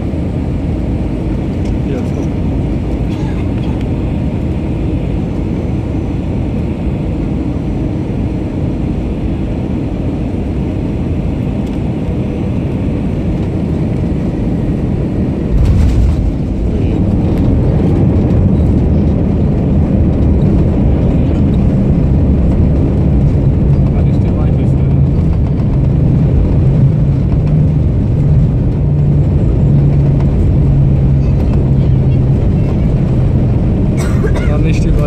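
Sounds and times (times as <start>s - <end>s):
jet engine roar: 0.0s - 35.0s
wheels touching down thud: 15.5s - 18.0s.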